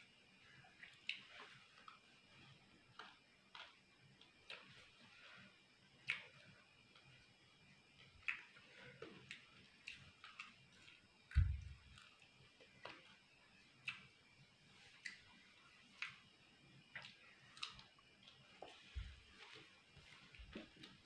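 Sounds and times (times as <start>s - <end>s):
low thump: 11.4s - 11.8s.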